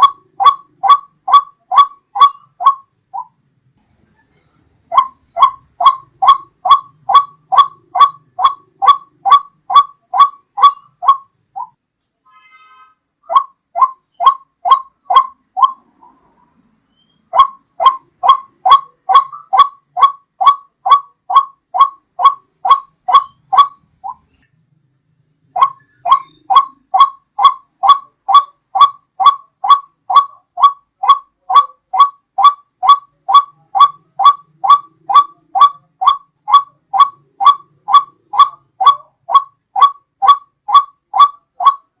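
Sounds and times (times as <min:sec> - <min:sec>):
waterhen calling: 0:00.0 - 0:03.3, 0:04.9 - 0:11.8, 0:13.3 - 0:16.3, 0:16.9 - 0:24.4, 0:25.5 - 0:42.0.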